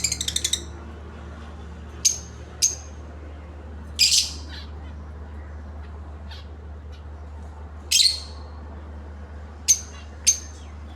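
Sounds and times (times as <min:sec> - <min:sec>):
lovebirds squawking: 0:00.0 - 0:00.7, 0:04.0 - 0:05.0
steady low hum: 0:00.0 - 0:10.9.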